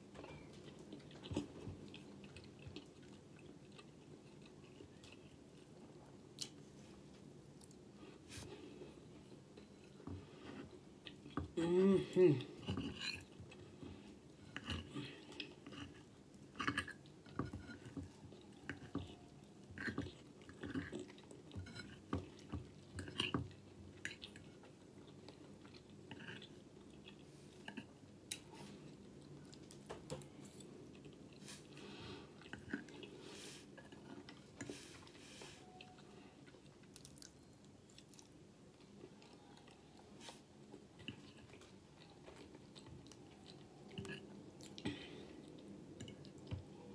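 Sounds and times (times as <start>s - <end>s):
person chewing food: 0.0s - 46.9s.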